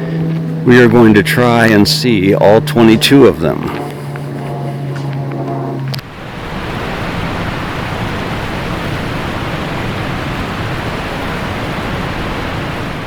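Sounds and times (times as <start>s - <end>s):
wind on microphone: 4.6s - 13.0s.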